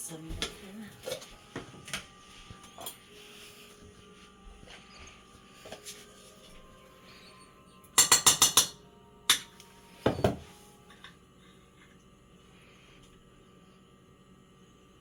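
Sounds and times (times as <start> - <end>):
utensil tapping cookware: 8.0 - 10.4.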